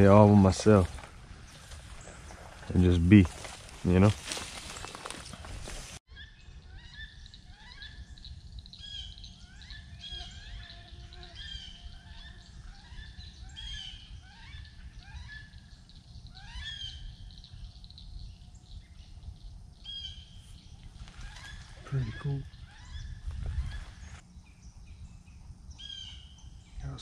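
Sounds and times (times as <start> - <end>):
low steady rumble: 0.0 - 27.0
birds whistling and chirping: 6.1 - 27.0.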